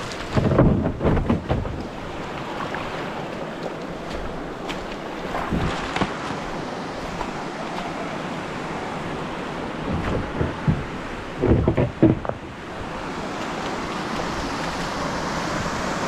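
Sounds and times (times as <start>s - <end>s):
wind on microphone: 0.0s - 2.4s, 5.3s - 6.4s, 9.8s - 13.0s
dull knocks and splashes: 0.0s - 6.5s, 9.8s - 12.7s
creek water running: 0.0s - 16.0s.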